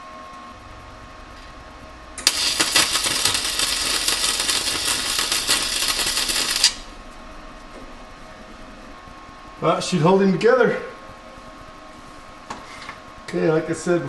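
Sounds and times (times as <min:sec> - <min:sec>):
welding arc crackling: 0:02.2 - 0:06.9.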